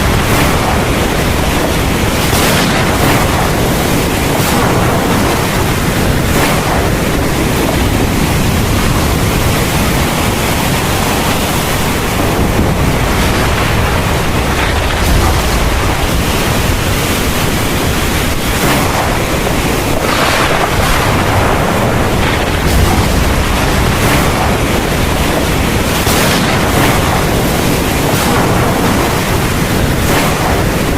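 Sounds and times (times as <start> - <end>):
heavy rain pouring: 0.0 - 30.9
deep low rumble: 11.8 - 27.5.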